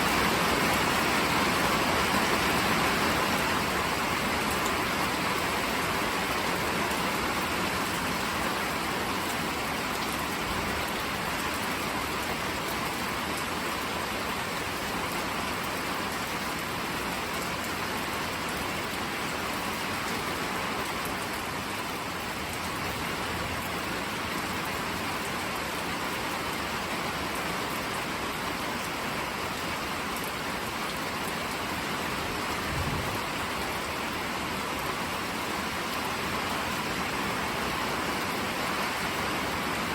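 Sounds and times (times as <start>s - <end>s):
rain spattering on surfaces: 0.0s - 39.9s.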